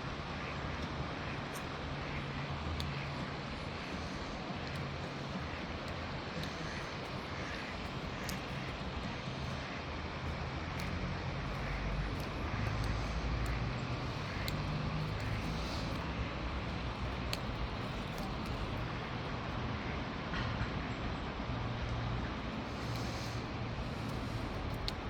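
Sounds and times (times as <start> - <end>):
outdoor rumble and hiss: 0.0 - 25.0
faint short clicks: 0.4 - 19.3, 22.6 - 25.0.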